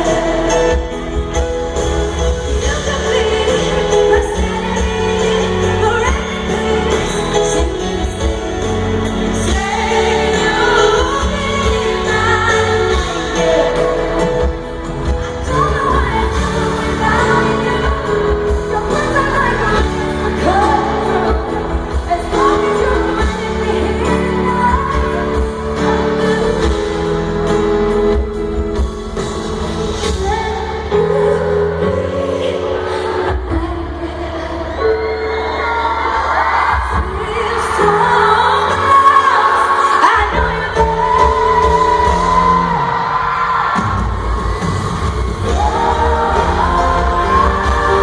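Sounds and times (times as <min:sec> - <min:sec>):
woman singing: 0:00.0 - 0:28.4, 0:29.9 - 0:48.0
band backing: 0:00.0 - 0:48.0
band chords: 0:36.4 - 0:48.0.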